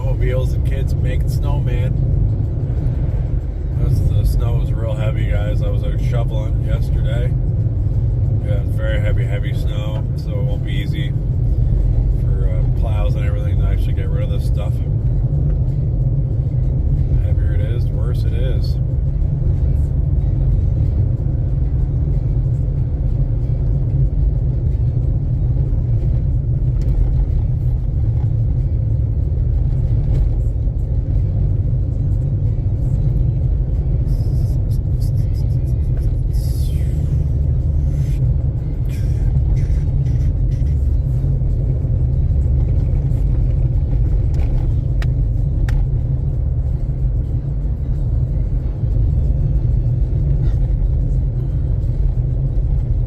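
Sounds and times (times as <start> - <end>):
car driving heard from inside: 0.0 - 53.0.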